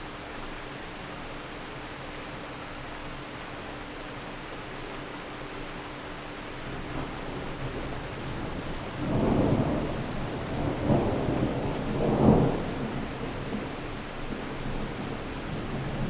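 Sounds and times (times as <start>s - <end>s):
steady rain: 0.0s - 16.0s
thunder rumbling: 6.9s - 13.8s.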